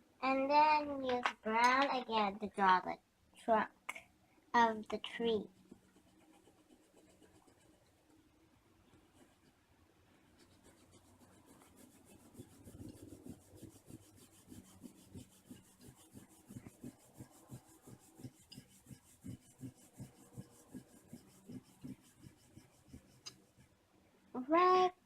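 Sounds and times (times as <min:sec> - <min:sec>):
colouring strokes on paper: 0:04.9 - 0:23.8.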